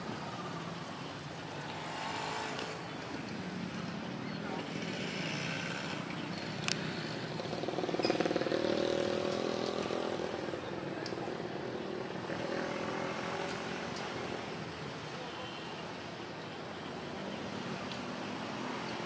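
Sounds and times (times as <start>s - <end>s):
traffic noise: 0.0s - 19.0s
vehicle engine passing: 4.6s - 10.7s
faint voices: 9.8s - 17.5s.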